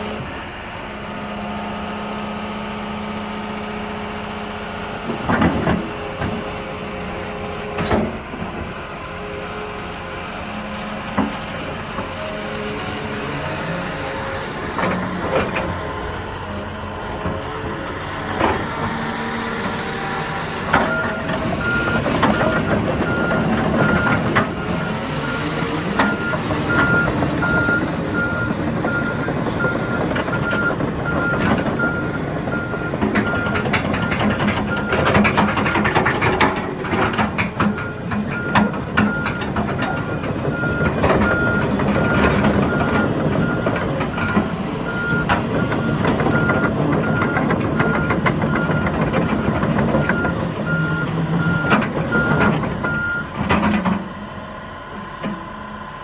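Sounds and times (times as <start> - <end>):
excavator diesel engine: 0.0 - 56.0.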